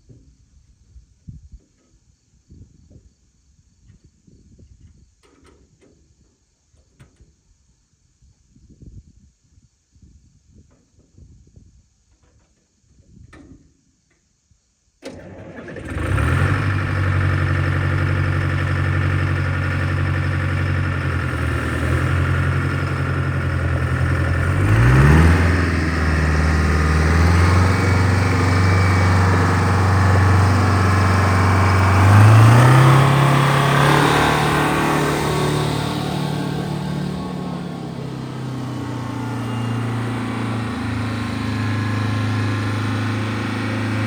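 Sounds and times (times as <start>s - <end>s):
diesel tractor engine: 15.1s - 44.0s.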